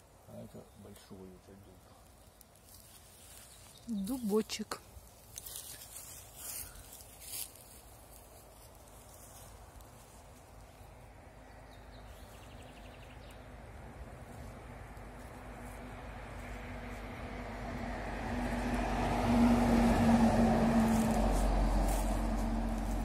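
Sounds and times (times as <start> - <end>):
vehicle engine hum: 0.0 - 23.0
rustles or steps: 2.1 - 11.0, 20.6 - 23.0.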